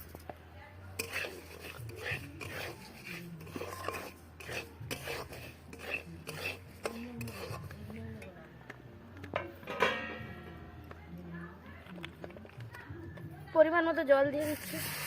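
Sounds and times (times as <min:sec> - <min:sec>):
utensil scraping a pan: 0:00.9 - 0:08.3.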